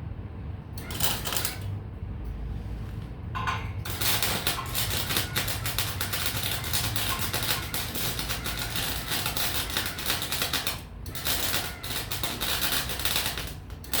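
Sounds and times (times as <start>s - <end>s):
welding arc crackling: 0.8s - 1.7s, 3.8s - 14.0s.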